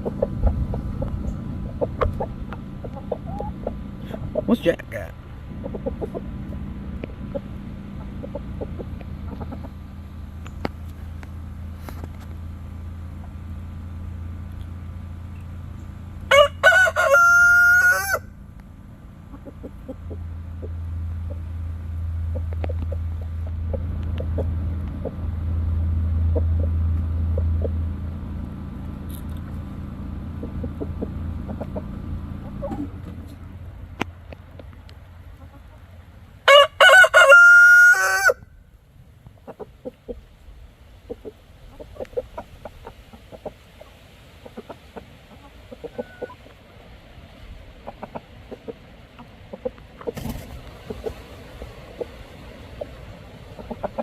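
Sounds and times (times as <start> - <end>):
low rumble: 0.0 - 16.4, 18.2 - 36.5
rooster crowing: 16.3 - 18.4, 36.4 - 38.6.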